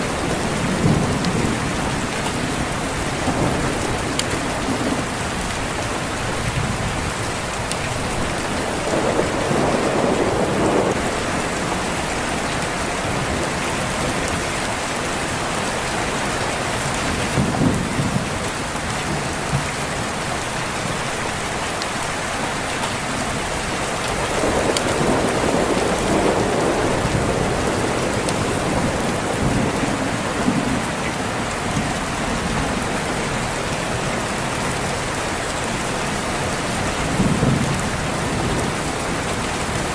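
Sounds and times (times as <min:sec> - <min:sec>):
heavy rain: 0:00.0 - 0:39.9
low rolls of thunder: 0:08.2 - 0:14.4, 0:17.1 - 0:19.7, 0:23.9 - 0:34.4, 0:36.6 - 0:39.9.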